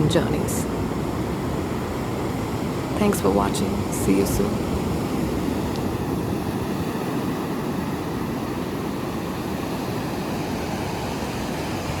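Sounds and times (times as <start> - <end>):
ocean surf washing: 0.0 - 12.0.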